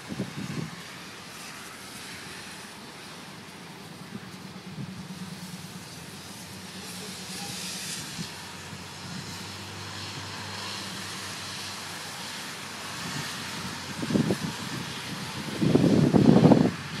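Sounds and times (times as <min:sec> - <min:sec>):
storm wind rushing: 0:00.0 - 0:01.2, 0:07.8 - 0:17.0.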